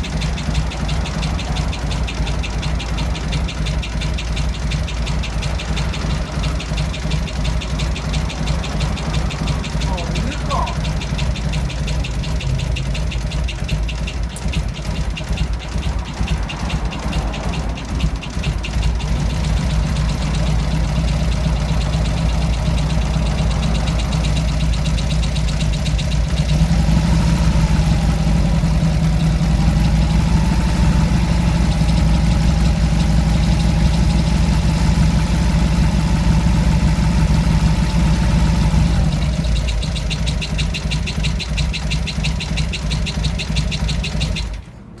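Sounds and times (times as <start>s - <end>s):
rhythmic swishing noise: 0.0s - 26.6s
vehicle engine running: 0.0s - 45.0s.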